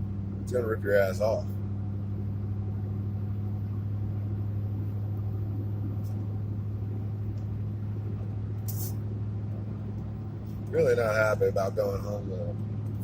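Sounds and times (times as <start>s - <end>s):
truck engine and road noise: 0.0s - 13.0s.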